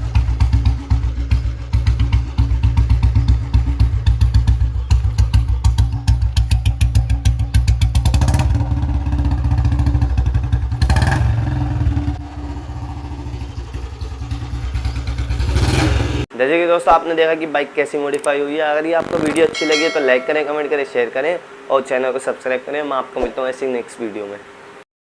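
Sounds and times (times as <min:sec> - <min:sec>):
motorcycle engine thumping: 0:00.0 - 0:11.0.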